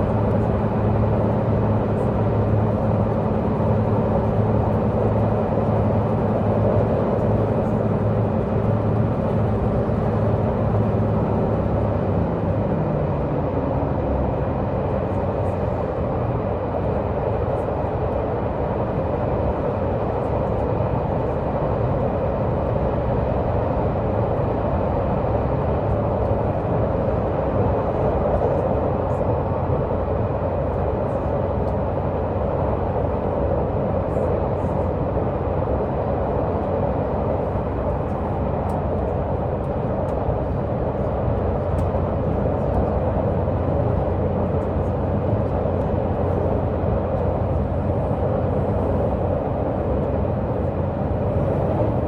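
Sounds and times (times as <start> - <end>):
diesel engine droning: 36.6 - 52.0.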